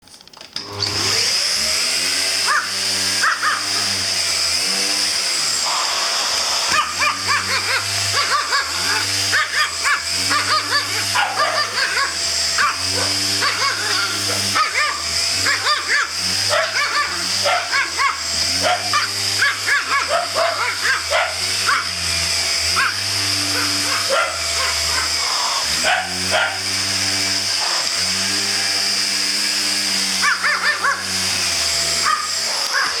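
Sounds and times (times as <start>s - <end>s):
vacuum cleaner motor whine: 0.4s - 33.0s
small dog yapping: 2.4s - 4.0s, 6.6s - 22.0s, 22.7s - 26.7s, 30.2s - 31.3s, 32.0s - 33.0s.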